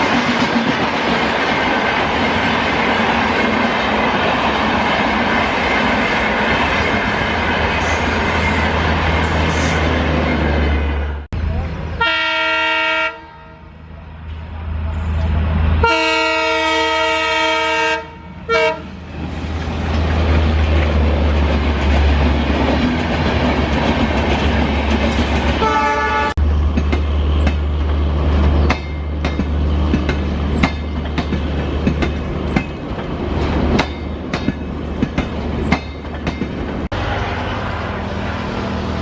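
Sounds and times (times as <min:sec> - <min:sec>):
train rumble: 0:00.0 - 0:39.0
train horn: 0:12.0 - 0:13.8, 0:15.8 - 0:19.0, 0:25.6 - 0:26.4
wheels clacking over rail joints: 0:19.1 - 0:25.7, 0:26.6 - 0:36.9.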